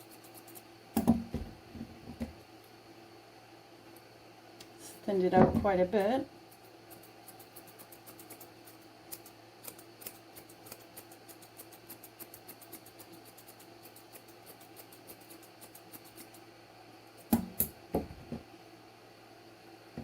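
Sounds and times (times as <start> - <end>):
scissors snipping hair: 6.5 - 16.4.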